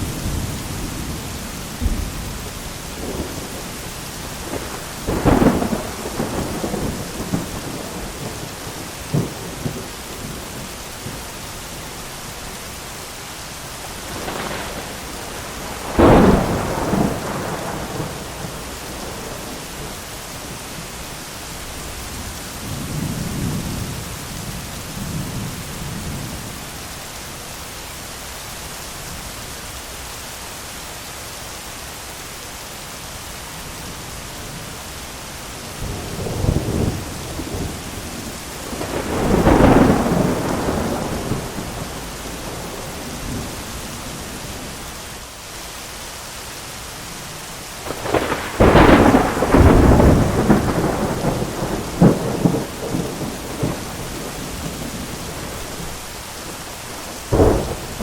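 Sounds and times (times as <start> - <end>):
thunder rumbling: 0.0 - 12.0, 13.8 - 20.9, 35.6 - 44.9, 47.8 - 58.0
heavy rain: 0.0 - 58.0.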